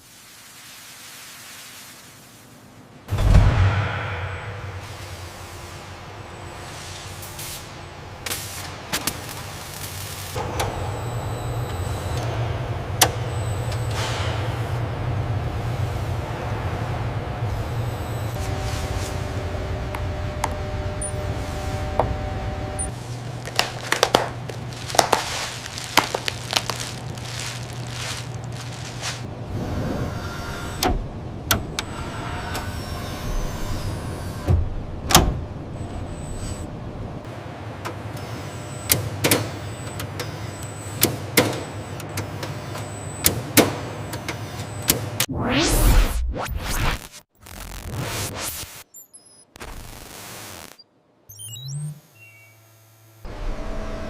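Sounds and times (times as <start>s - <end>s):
low machinery hum: 2.7s - 38.8s.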